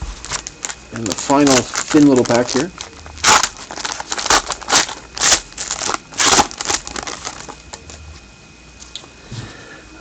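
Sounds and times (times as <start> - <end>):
plastic wrapper crinkling: 0.0 - 7.9.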